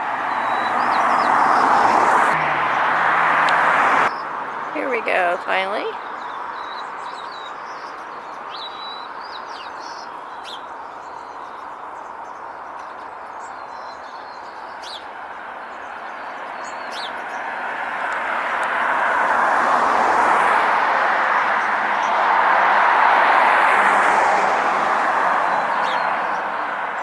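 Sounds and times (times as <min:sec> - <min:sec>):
vehicle passing: 0:00.0 - 0:05.9, 0:17.4 - 0:27.0
road traffic noise: 0:00.0 - 0:08.4, 0:09.1 - 0:27.0.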